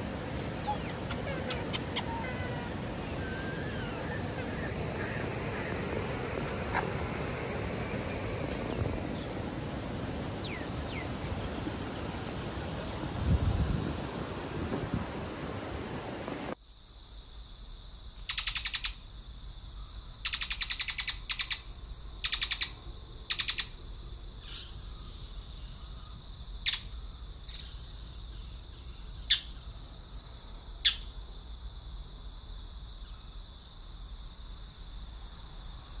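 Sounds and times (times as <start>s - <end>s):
steady high-pitched whine: 0.0s - 13.2s
harsh buzzy bird calls: 0.1s - 12.2s, 20.2s - 23.8s.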